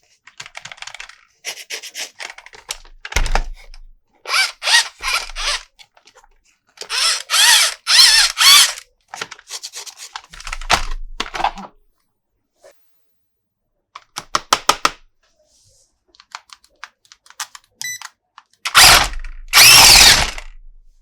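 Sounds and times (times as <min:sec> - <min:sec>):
plastic toy parts ratcheting: 0:00.4 - 0:01.2, 0:02.0 - 0:06.2, 0:06.8 - 0:10.9, 0:16.3 - 0:20.6.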